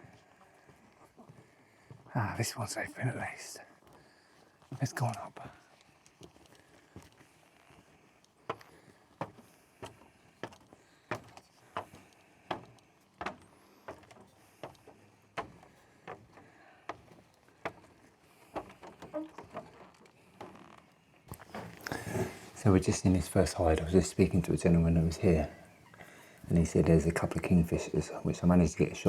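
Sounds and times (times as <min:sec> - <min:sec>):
footsteps on wooden boards: 0:03.8 - 0:27.5.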